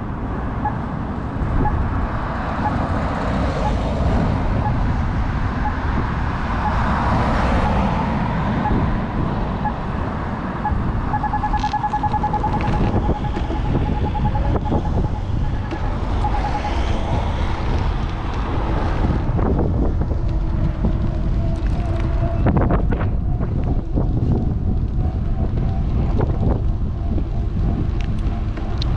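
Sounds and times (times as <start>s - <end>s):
road traffic: 0.0s - 28.9s
wind rumbling on microphone: 0.0s - 28.9s
rapid electronic beeping: 6.6s - 6.8s, 8.6s - 8.8s, 10.6s - 17.4s.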